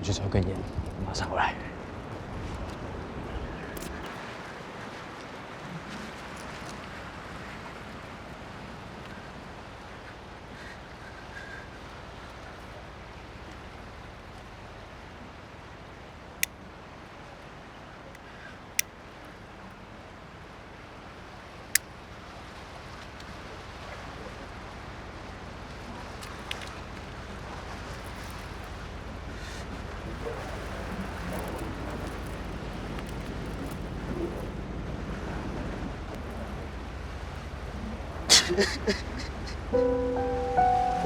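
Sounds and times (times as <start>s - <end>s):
wind noise: 26.2s - 39.8s.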